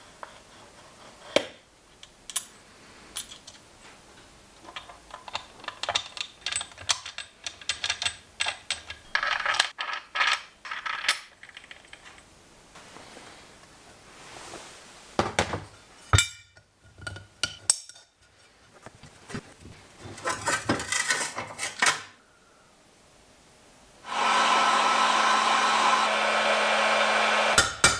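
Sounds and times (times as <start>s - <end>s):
small metal parts clinking: 2.3s - 3.6s, 4.6s - 12.3s.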